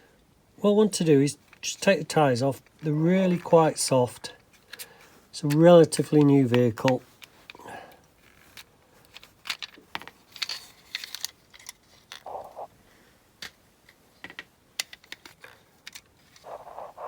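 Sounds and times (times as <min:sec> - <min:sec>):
brief rubbing: 0:16.4 - 0:17.0.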